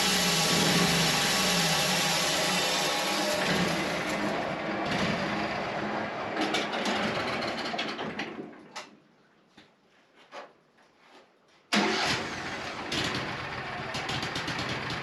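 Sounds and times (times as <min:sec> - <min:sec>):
sawmill running: 0:00.0 - 0:08.6.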